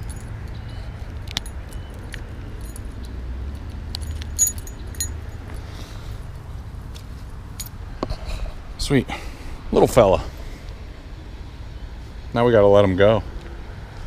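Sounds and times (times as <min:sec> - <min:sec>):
fishing tackle clinking: 0:03.9 - 0:05.4.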